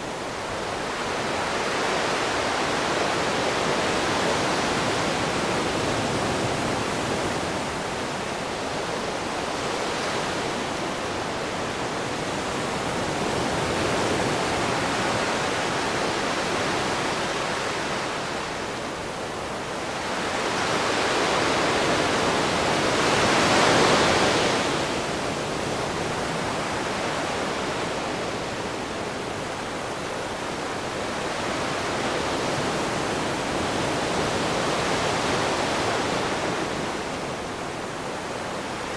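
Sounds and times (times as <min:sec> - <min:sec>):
ocean waves washing ashore: 0:00.0 - 0:38.9.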